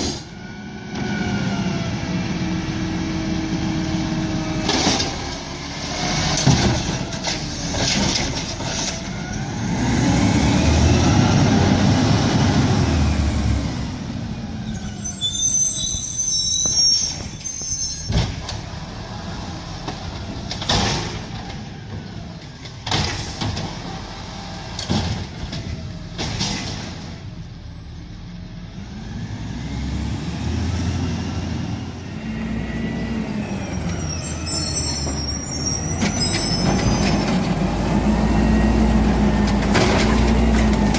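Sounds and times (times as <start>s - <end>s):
diesel engine revving: 0.0s - 14.6s, 28.6s - 34.6s, 35.9s - 40.9s
high squeals: 14.5s - 18.2s, 33.3s - 37.4s.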